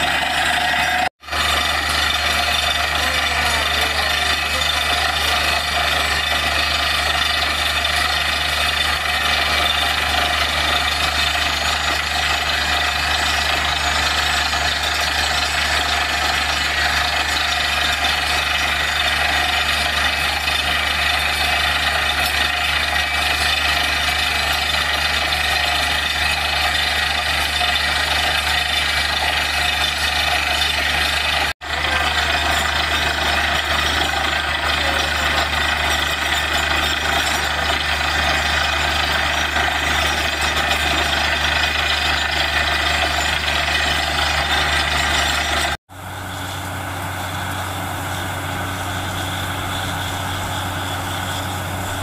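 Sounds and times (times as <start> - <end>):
drilling rig engine drone: 0.0 - 52.0.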